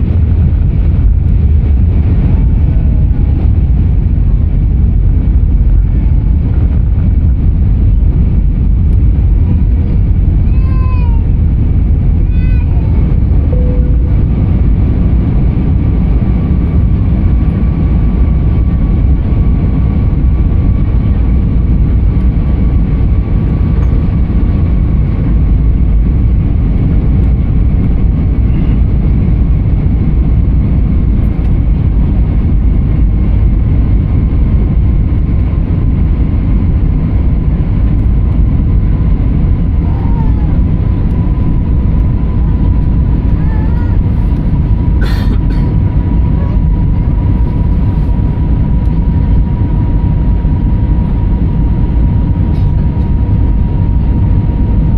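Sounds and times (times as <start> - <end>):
rushing air: 0.0 - 18.1
airliner engines rumbling in cabin: 0.0 - 54.9
faint whining tones: 12.2 - 16.0.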